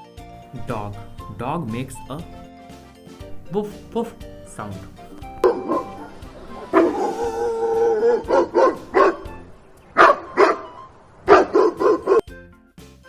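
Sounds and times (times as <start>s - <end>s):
dog barking: 5.2s - 12.3s.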